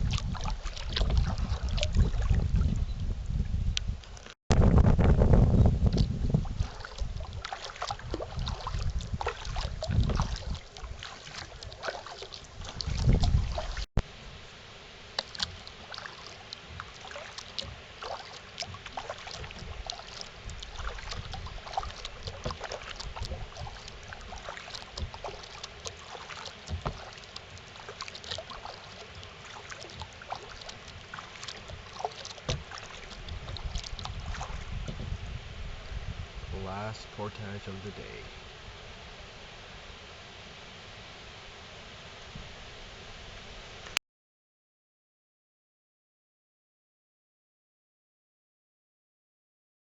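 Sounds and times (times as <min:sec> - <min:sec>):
paddle splashing in water: 0:00.0 - 0:03.0, 0:05.0 - 0:43.9
wind buffeting microphone: 0:00.0 - 0:11.8, 0:12.5 - 0:13.9, 0:32.6 - 0:37.1
water dripping: 0:05.8 - 0:13.9, 0:15.1 - 0:34.9.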